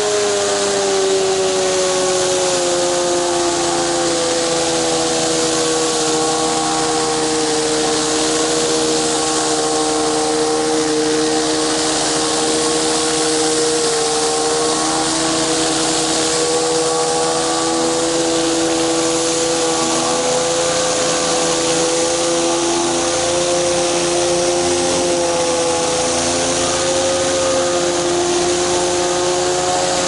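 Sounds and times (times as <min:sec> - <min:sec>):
high-pressure water spraying concrete: 0:00.0 - 0:30.0
pressure washer engine running: 0:00.0 - 0:30.0.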